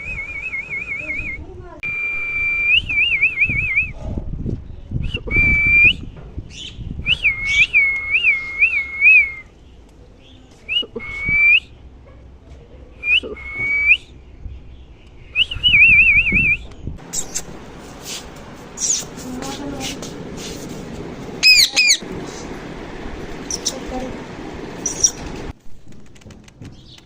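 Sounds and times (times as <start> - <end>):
parrot whistling: 18.8 - 19.1, 21.4 - 22.0, 24.8 - 25.2.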